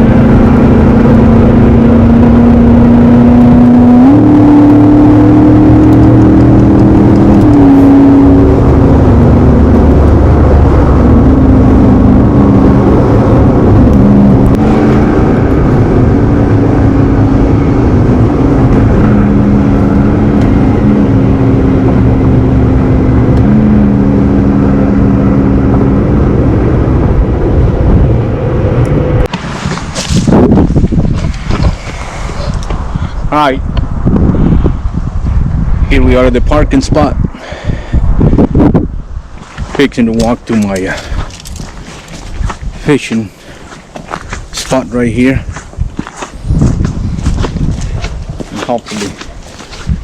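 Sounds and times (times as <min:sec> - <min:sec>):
humming drone: 0:00.0 - 0:33.2
car engine and road rumble: 0:00.0 - 0:50.0.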